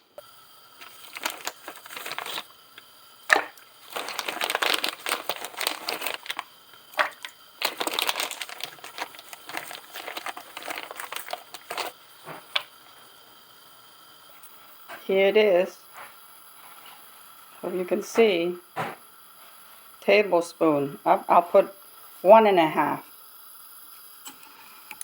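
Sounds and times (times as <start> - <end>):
plastic packaging crinkling: 0.8 - 12.7.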